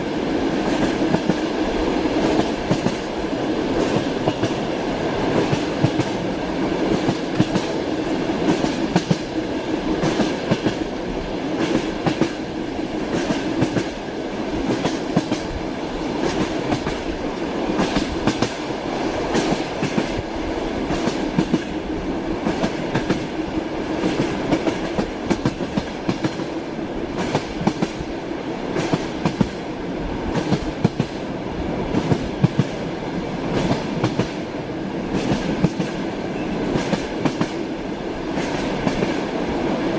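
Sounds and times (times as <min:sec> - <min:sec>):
train carriage rumble: 0:00.0 - 0:39.9.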